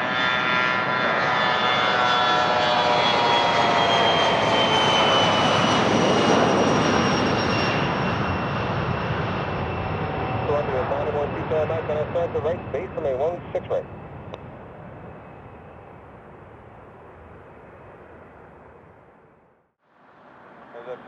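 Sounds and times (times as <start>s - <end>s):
rushing jet engine noise: 0.0s - 19.4s
jet turbine whine: 0.0s - 21.0s.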